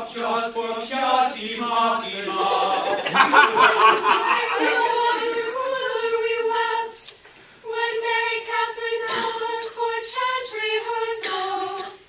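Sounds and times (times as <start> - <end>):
voices chanting in unison: 0.0 - 7.0.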